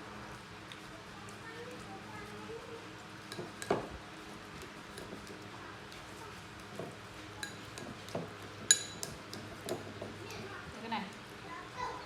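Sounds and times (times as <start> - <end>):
dishes clinking: 3.3 - 3.9, 6.8 - 9.9.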